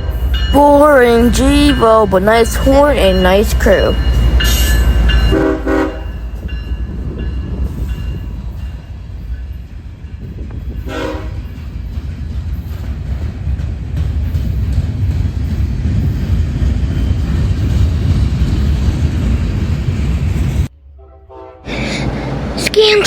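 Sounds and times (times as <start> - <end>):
freight train rumbling: 0.0 - 20.8, 21.4 - 23.0
train horn blasts: 5.3 - 6.2, 10.8 - 11.5, 21.0 - 21.7.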